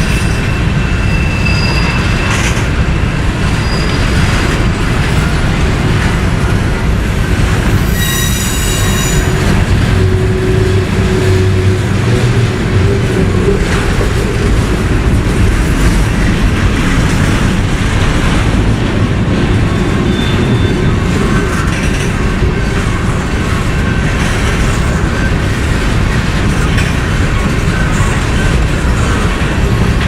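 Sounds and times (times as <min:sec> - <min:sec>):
train wheels rumbling on rails: 0:00.0 - 0:30.0
high-pitched wheel squeal: 0:00.2 - 0:02.5, 0:07.8 - 0:14.6, 0:20.0 - 0:21.0.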